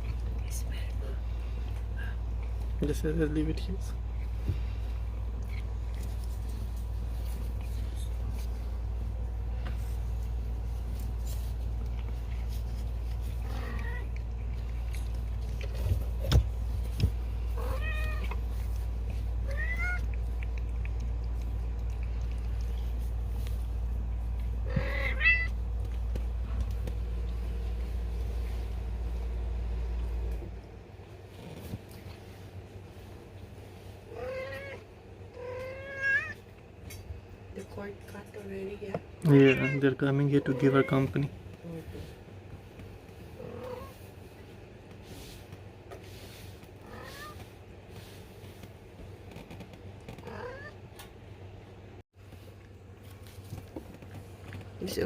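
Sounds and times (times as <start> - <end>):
steady low hum: 0.0 - 55.0
cat mewing: 17.5 - 18.4, 19.4 - 20.2, 24.6 - 25.6, 34.1 - 36.4, 39.3 - 39.8, 50.2 - 50.8.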